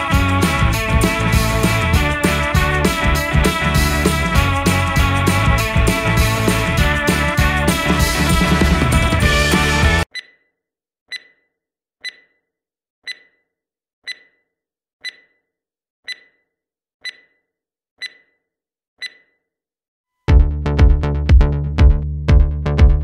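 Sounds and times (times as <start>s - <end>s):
background music: 0.0s - 10.1s.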